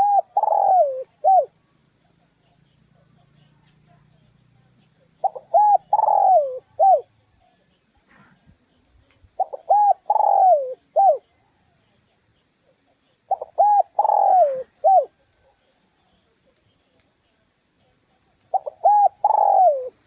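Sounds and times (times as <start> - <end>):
dove cooing: 0.0 - 1.6, 5.0 - 7.2, 9.4 - 11.6, 12.6 - 15.8, 18.4 - 20.0.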